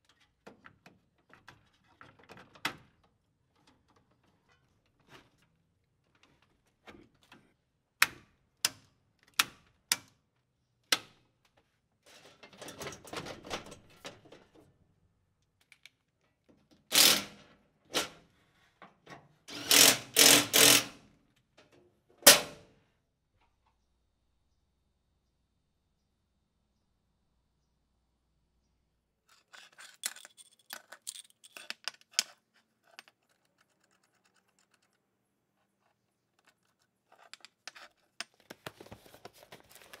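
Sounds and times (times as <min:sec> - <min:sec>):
metal clicks: 0:29.3 - 0:35.0.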